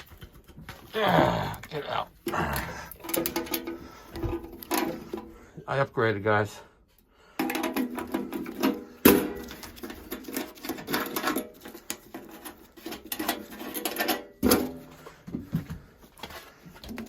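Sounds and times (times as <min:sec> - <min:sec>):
metallic clattering and scraping: 0:01.6 - 0:05.4, 0:07.4 - 0:15.1.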